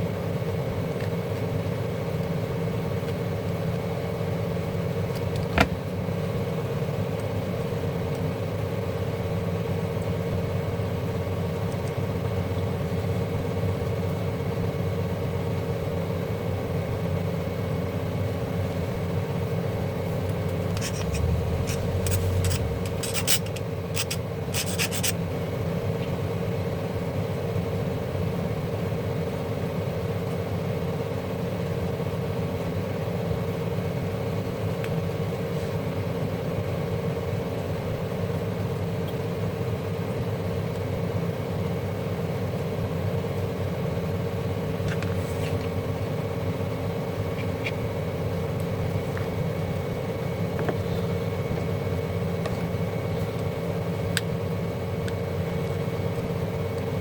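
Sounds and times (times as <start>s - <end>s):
mechanical hum: 0.0s - 57.0s
sharp clicks and rattles: 20.7s - 25.2s.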